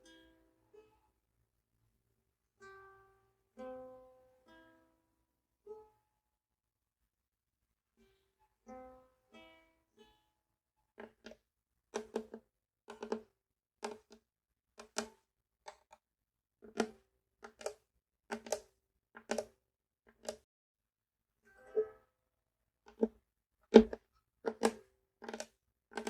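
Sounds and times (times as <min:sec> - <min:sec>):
ukulele plucked notes: 0:21.5 - 0:22.0.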